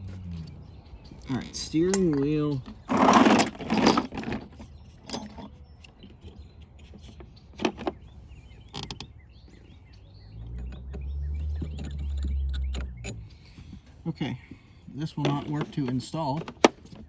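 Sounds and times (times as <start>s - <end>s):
low hum: 0.0s - 1.1s, 10.2s - 13.7s
hand tools clicking and knocking: 1.4s - 8.0s, 10.5s - 13.4s, 15.0s - 17.0s.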